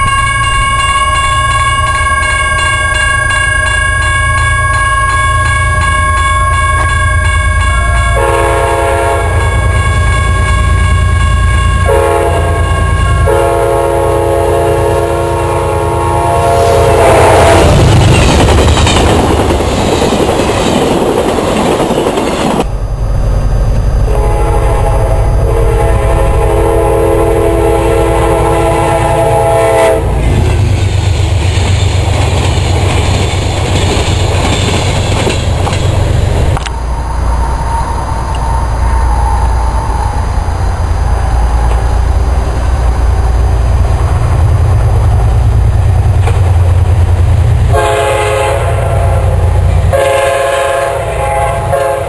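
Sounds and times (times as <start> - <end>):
locomotive air horn chord: 0.0 - 17.8, 24.1 - 30.2, 47.7 - 52.0
train rumbling on rails: 0.0 - 52.0.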